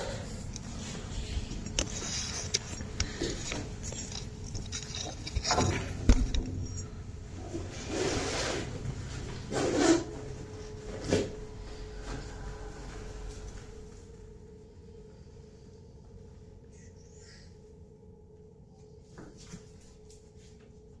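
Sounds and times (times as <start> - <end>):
rubbing and scraping: 0.3 - 11.4.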